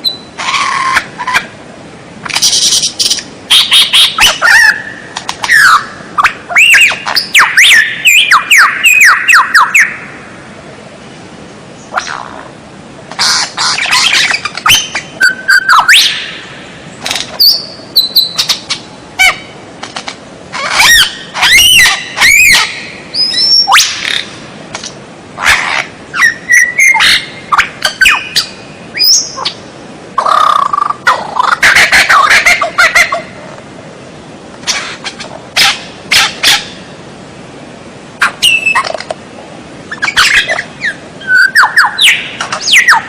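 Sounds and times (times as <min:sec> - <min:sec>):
bird singing varied whistles: 0:00.0 - 0:00.3, 0:05.5 - 0:09.9, 0:13.9 - 0:16.2, 0:17.4 - 0:18.6, 0:20.8 - 0:24.0, 0:26.2 - 0:29.5, 0:38.4 - 0:38.9, 0:40.0 - 0:43.0.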